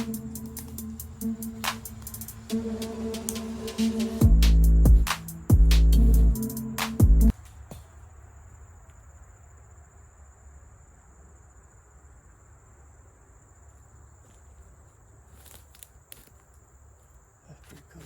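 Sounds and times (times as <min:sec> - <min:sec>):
low rumble: 0:00.0 - 0:07.3
high insect drone: 0:00.0 - 0:07.4.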